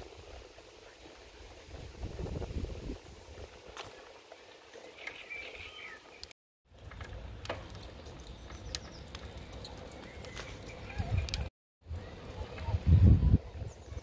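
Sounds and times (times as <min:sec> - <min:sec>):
low rumble of outdoor air: 0:00.0 - 0:04.7
small birds chirping: 0:03.9 - 0:06.3, 0:07.8 - 0:11.5.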